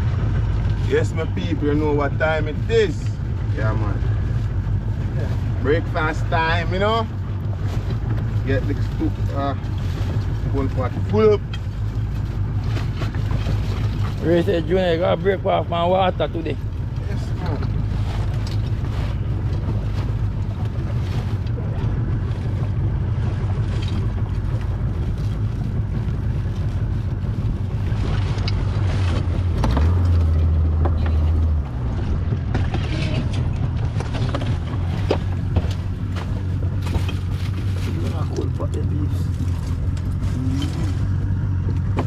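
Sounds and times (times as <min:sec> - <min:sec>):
fishing boat engine rumble: 0:00.0 - 0:42.0
loud low hum: 0:00.0 - 0:42.0
wind on microphone: 0:16.6 - 0:38.3.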